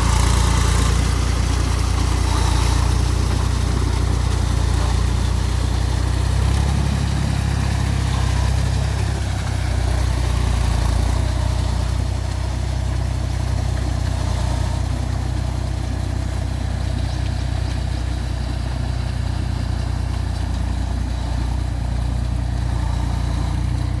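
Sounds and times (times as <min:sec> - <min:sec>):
tractor diesel engine droning: 0:00.0 - 0:24.0.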